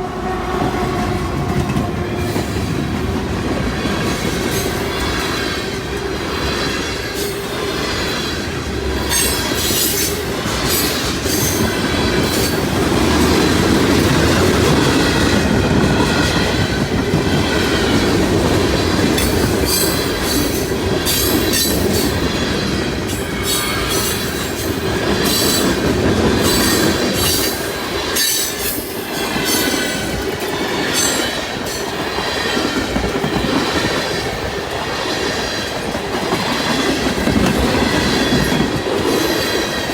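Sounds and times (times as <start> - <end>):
freight train cars rumbling: 0.0 - 39.9
train wheels squealing: 3.9 - 13.5, 18.8 - 35.7.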